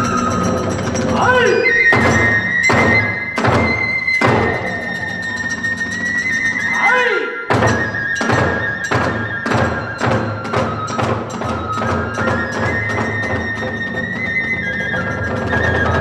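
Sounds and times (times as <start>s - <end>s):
bamboo flute high notes: 0.0s - 16.0s
drums and hand cymbals beating: 0.0s - 16.0s.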